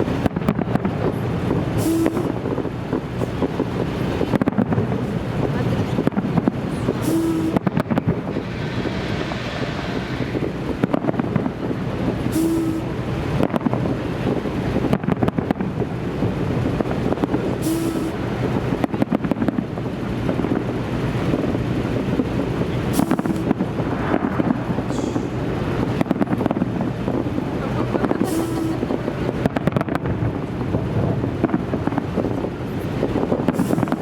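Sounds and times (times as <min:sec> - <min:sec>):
fireworks bangs and crackles: 0:00.0 - 0:34.0
wind on microphone: 0:00.0 - 0:34.0
low rumble: 0:04.6 - 0:14.1, 0:18.2 - 0:28.2.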